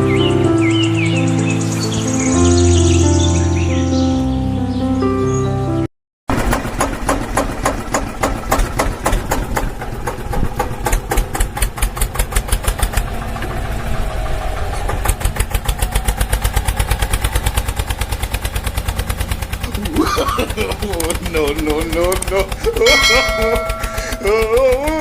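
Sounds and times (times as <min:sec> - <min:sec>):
tractor engine chugging: 0:06.3 - 0:25.0.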